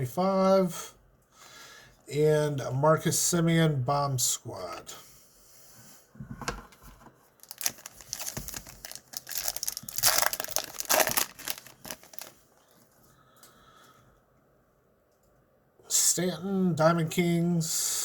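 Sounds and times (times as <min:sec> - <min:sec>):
card pack wrapper crinkling and tearing: 0:07.4 - 0:12.7.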